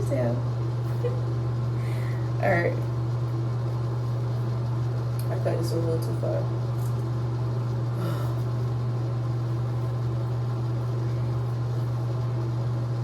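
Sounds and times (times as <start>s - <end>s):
low hum with hiss: 0.0s - 13.0s.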